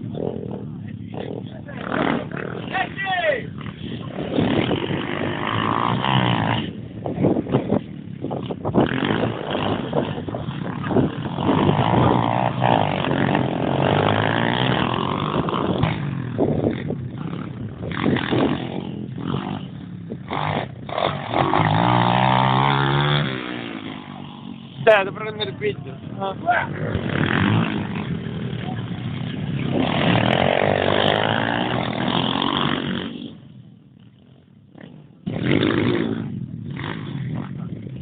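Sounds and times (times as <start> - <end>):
pit bike engine revving: 0.0 - 38.0.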